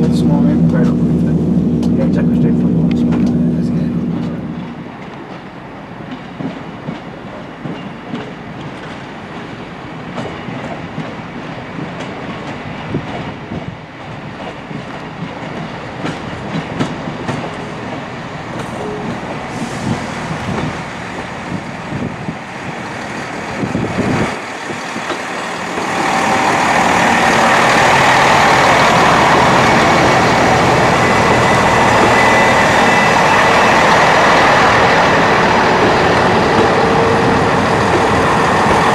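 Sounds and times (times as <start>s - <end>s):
loud train rush: 0.0s - 38.9s
train running noise: 0.0s - 38.9s.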